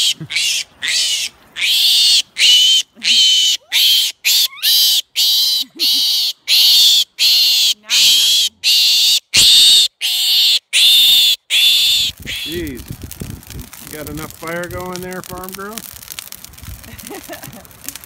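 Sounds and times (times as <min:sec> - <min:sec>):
pig squealing: 0:00.0 - 0:12.6.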